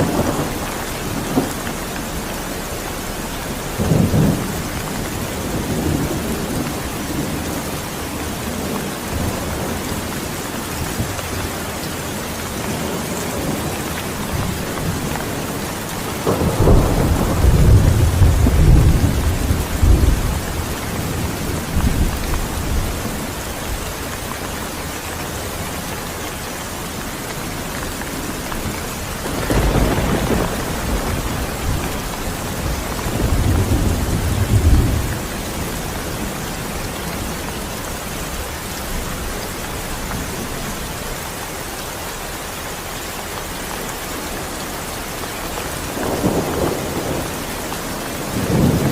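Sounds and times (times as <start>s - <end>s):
rolling thunder: 0.0s - 11.5s, 12.5s - 24.2s, 27.6s - 40.7s, 45.9s - 48.9s
heavy rain: 0.0s - 48.9s.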